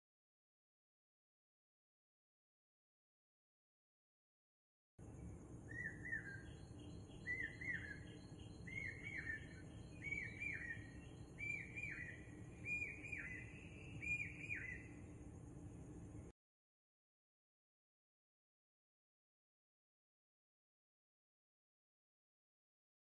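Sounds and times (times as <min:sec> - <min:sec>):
bird chirping: 0:05.0 - 0:15.4
low background noise: 0:05.0 - 0:16.3.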